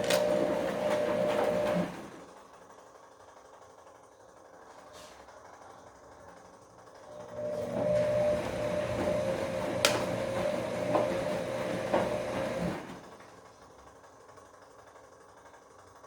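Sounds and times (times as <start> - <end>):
washing machine motor whining: 0.0 - 2.5, 7.0 - 13.6.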